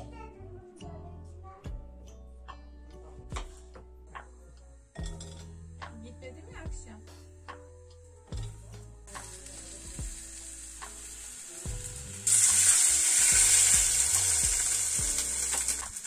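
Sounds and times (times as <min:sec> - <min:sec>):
food sizzling in a pan: 0:09.0 - 0:16.0.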